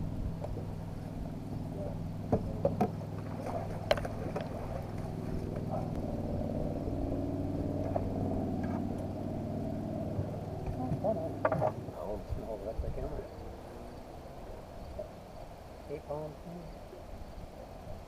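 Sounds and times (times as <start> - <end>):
boat engine running: 0.0 - 18.0.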